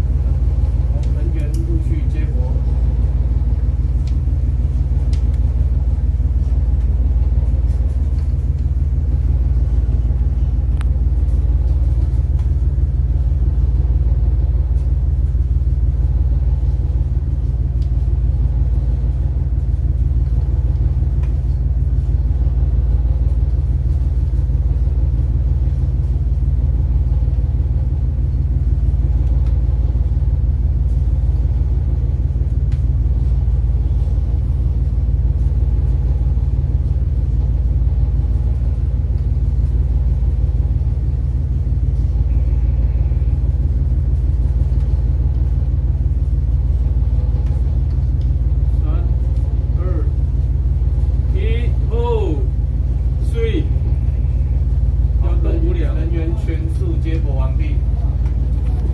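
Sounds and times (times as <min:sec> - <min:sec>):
boat engine rumbling: 0:00.0 - 0:58.9.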